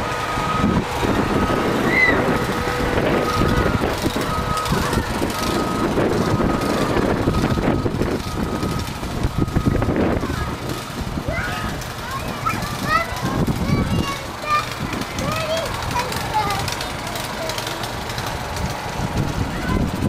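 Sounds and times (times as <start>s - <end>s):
vehicle backup alarm beeping: 0.0s - 11.3s
engine rumble: 0.0s - 20.0s.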